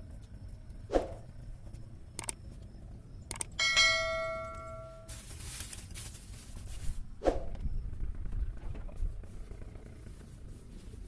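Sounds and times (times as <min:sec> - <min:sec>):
bell ding: 0:03.6 - 0:05.1.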